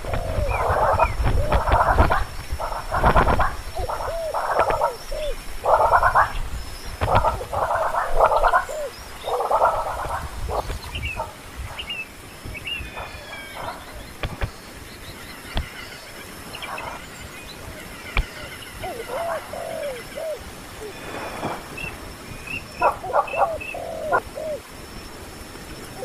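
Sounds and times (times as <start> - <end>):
short curving calls: 17.8 - 24.7.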